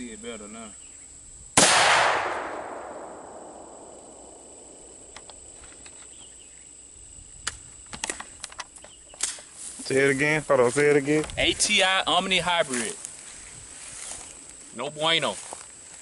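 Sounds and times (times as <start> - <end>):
rifle shot with echo: 1.6 - 5.1.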